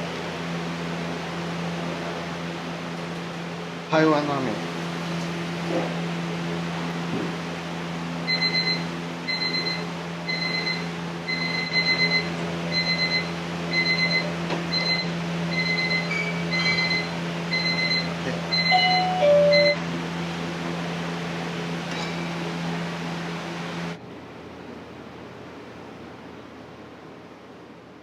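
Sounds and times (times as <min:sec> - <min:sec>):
fan hum: 0:00.0 - 0:28.0
electronic alarm beeping: 0:08.3 - 0:19.8
short beeps at different pitches: 0:18.6 - 0:19.8.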